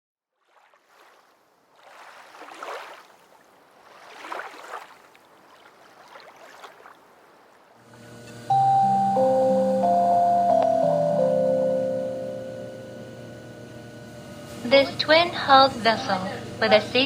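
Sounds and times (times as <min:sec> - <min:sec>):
water washing against boat hull: 0:00.4 - 0:07.9
mallet instrument music: 0:08.5 - 0:13.1.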